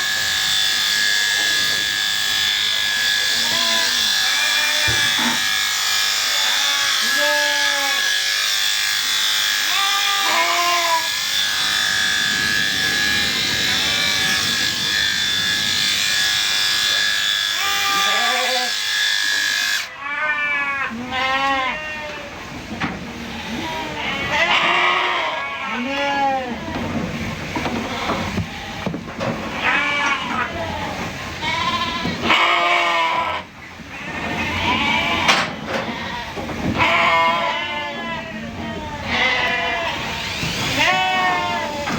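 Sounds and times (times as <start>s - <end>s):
electric shears whining: 0.0s - 19.9s, 39.4s - 41.9s
sheep bleating: 6.4s - 8.2s, 9.6s - 11.2s, 23.4s - 26.7s, 29.5s - 41.9s.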